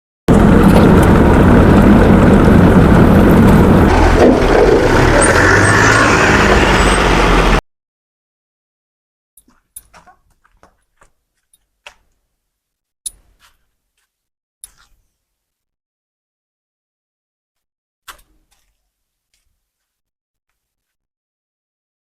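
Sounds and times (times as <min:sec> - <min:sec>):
tractor diesel engine running: 0:00.3 - 0:07.6.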